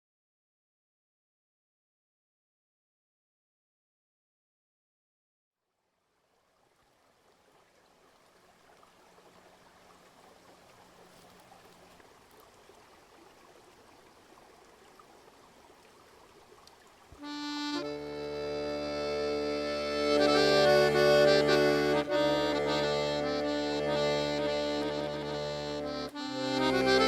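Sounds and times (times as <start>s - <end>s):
faint trickling rush: 5.8s - 17.5s.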